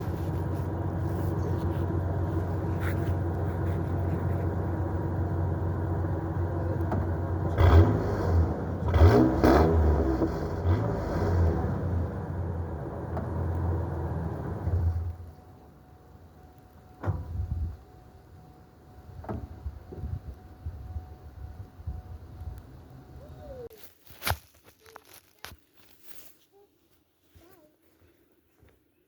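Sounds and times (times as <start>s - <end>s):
truck engine idling and revving: 0.0s - 23.2s.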